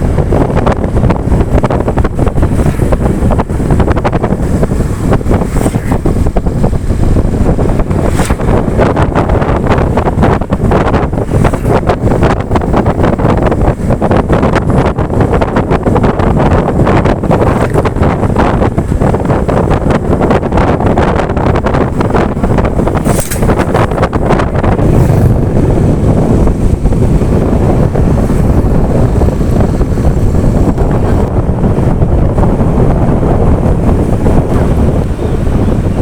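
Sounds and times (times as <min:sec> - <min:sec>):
motorcycle engine: 0:00.0 - 0:36.0
road noise: 0:00.0 - 0:36.0
wind buffeting microphone: 0:00.0 - 0:36.0.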